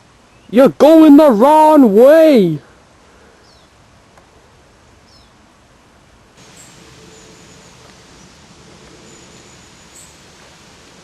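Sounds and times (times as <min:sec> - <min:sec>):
faint outdoor background noise: 0:00.0 - 0:11.0
high falling chirp: 0:06.4 - 0:10.4.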